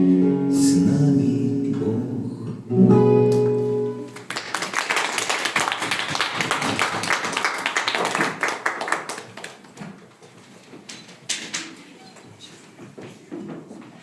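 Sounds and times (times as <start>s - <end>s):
audience applauding: 4.1s - 9.8s.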